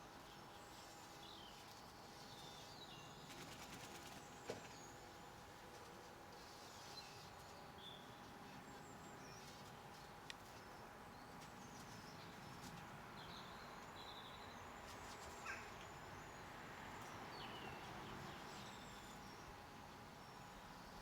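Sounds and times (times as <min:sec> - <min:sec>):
small birds chirping: 0:06.4 - 0:21.0.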